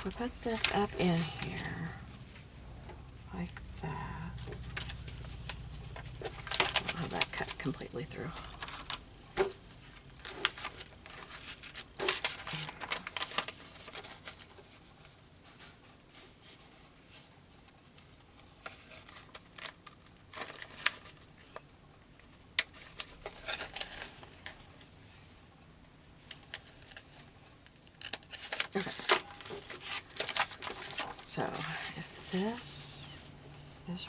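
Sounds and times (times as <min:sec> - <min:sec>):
paper rustling: 0:00.0 - 0:02.6, 0:04.3 - 0:21.3, 0:22.6 - 0:24.9, 0:26.2 - 0:33.3.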